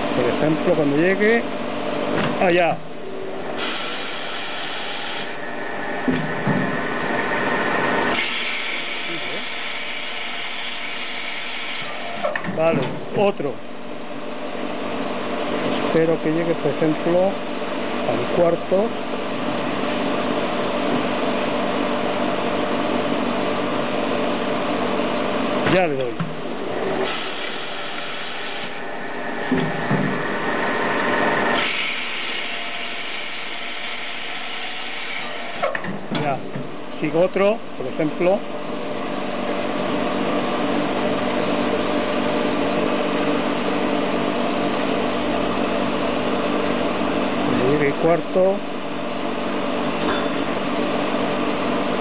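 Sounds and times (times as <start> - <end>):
machine motor hum: 0.0 - 48.8
glass drilling machine humming: 6.7 - 12.3, 26.5 - 35.7.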